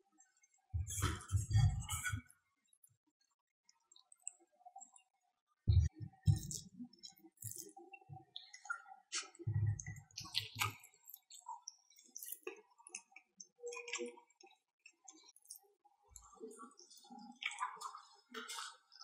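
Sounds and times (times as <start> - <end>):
soft low thuds: 5.7 - 6.6
wet mouth clicks and chewing: 5.7 - 15.6, 17.2 - 18.8.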